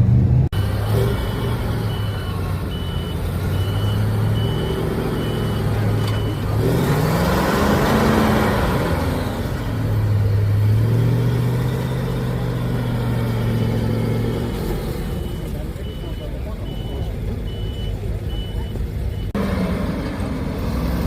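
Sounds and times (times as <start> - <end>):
truck engine idling and revving: 0.0 - 21.0
reversing beeper pulsing: 0.6 - 6.5, 10.0 - 19.3.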